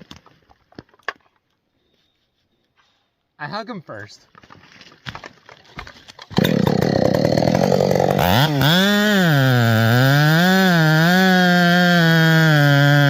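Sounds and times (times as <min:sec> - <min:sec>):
chainsaw running at high revs: 0:06.4 - 0:13.0.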